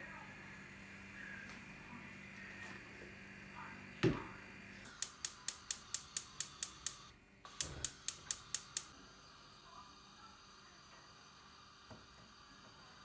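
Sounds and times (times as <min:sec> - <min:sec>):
rapid sharp clicks: 0:04.9 - 0:08.9.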